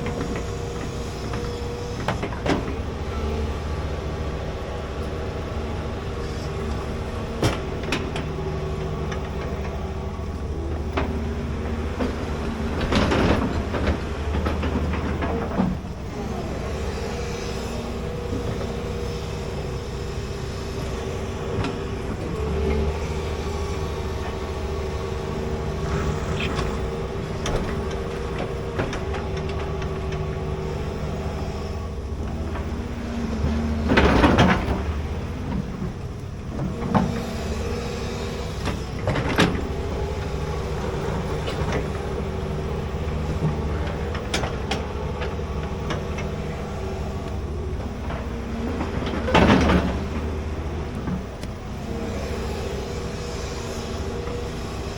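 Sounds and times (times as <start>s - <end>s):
excavator diesel engine running: 0.0s - 54.9s
digging noises: 6.2s - 31.3s.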